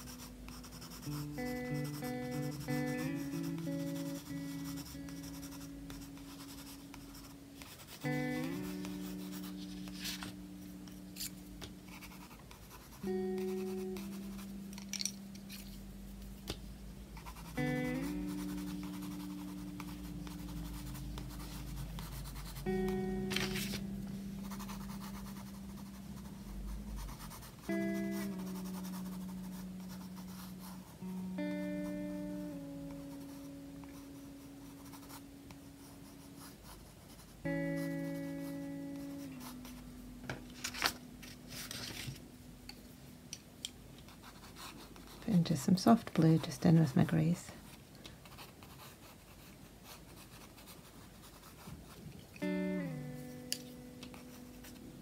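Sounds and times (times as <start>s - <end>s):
pencil scratching on paper: 0.0s - 8.0s, 11.9s - 14.5s, 17.2s - 22.6s, 24.5s - 31.0s, 44.1s - 45.4s, 48.3s - 52.0s
soft background music: 0.0s - 55.0s.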